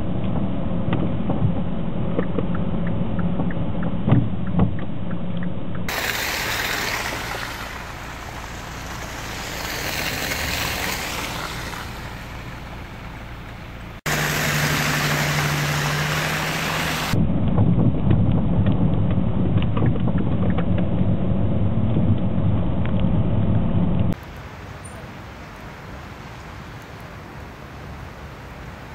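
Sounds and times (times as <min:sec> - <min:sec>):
low engine hum: 0:00.0 - 0:25.0
low traffic rumble: 0:00.0 - 0:28.9
hiss-like traffic haze: 0:05.9 - 0:17.2, 0:24.1 - 0:28.9.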